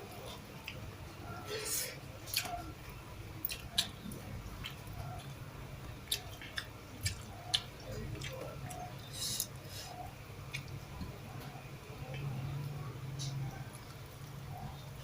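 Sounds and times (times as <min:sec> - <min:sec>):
person chewing food: 0:00.1 - 0:12.3.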